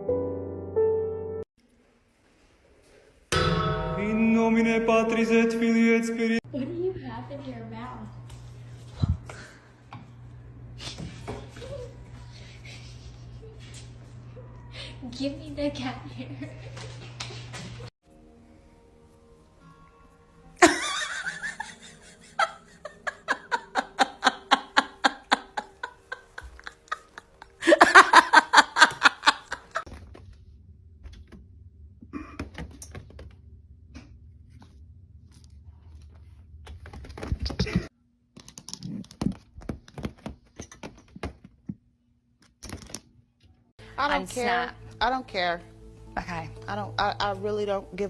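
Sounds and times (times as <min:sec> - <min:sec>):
person laughing: 0:20.6 - 0:29.8.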